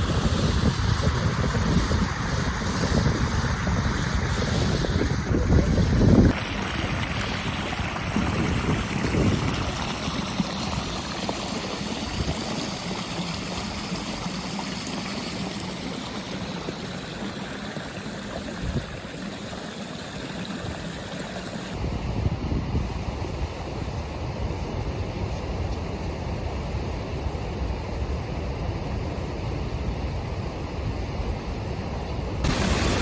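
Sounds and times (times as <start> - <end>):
wind gusts on microphone: 0.0 - 11.0, 21.7 - 28.8
flowing water rushing: 0.0 - 21.8, 32.4 - 33.0.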